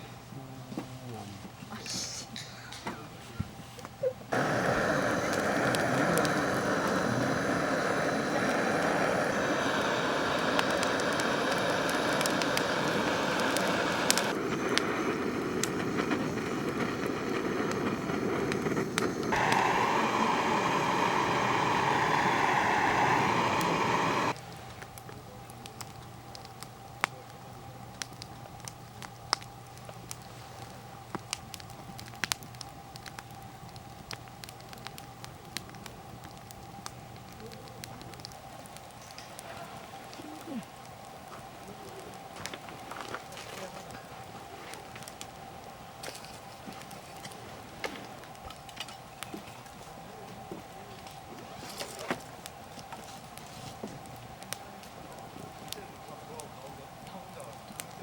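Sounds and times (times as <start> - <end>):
sharp pops and crackles: 4.3 - 58.0
steady rushing noise: 4.4 - 24.4.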